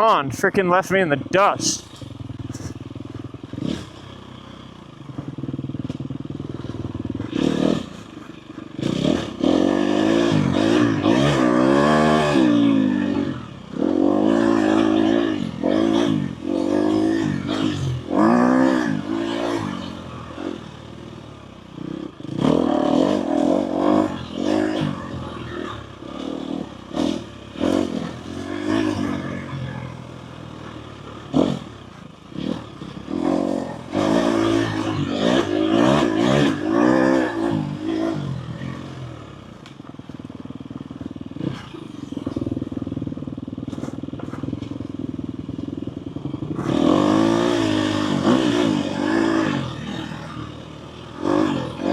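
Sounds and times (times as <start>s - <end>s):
dirt bike engine revving: 0.0s - 39.6s, 40.2s - 51.9s
bike clattering over rough ground: 43.5s - 45.0s.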